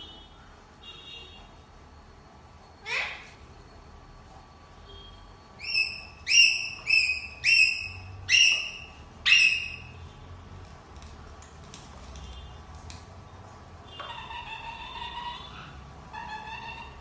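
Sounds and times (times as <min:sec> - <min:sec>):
parrot whistled calls: 0:05.6 - 0:10.0.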